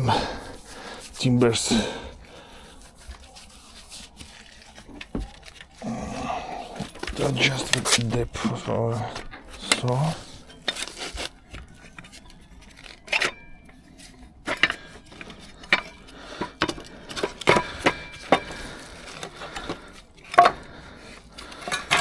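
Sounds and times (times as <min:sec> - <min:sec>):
rubbing and scraping: 0:00.0 - 0:22.0
clicks and knocks of saw parts: 0:14.4 - 0:20.7, 0:21.4 - 0:22.0.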